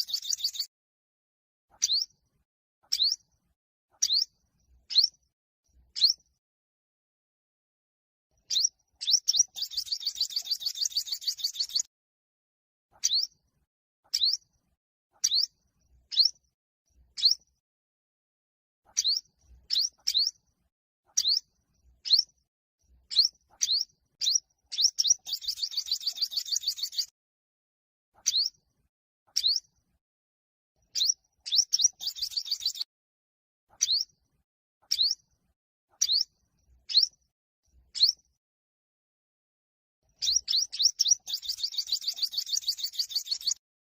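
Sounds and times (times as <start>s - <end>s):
bird high sweeping chirps: 0.0s - 0.7s, 1.8s - 2.1s, 6.0s - 6.2s, 8.5s - 11.9s, 13.0s - 13.3s, 15.2s - 15.5s, 17.2s - 17.4s, 19.0s - 20.3s, 22.0s - 22.3s, 23.1s - 27.1s, 28.2s - 28.5s, 29.4s - 29.6s, 30.9s - 32.9s, 33.8s - 34.1s, 34.9s - 35.2s, 36.0s - 36.3s, 36.9s - 37.1s, 38.0s - 38.2s, 40.2s - 43.6s.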